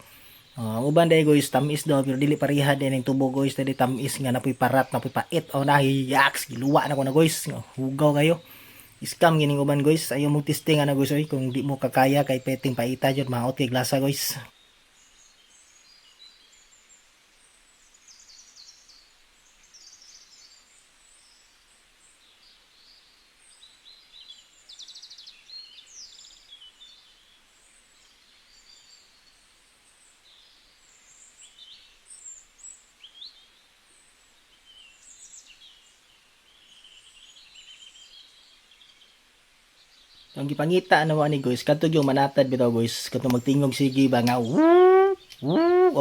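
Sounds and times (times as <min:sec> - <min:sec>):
birds chirping and trilling: 0:00.0 - 0:14.5, 0:40.3 - 0:46.0
background hiss: 0:00.0 - 0:46.0.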